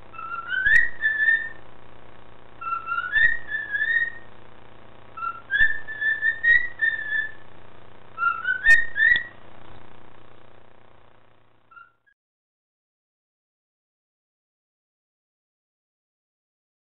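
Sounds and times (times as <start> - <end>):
cockatiel whistling: 0.1 - 1.6, 2.6 - 4.3, 5.2 - 7.4, 8.2 - 9.4, 11.7 - 12.1.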